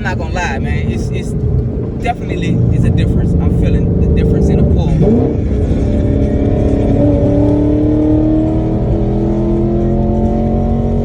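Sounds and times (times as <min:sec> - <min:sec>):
car engine and loud exhaust accelerating: 0:00.0 - 0:11.0.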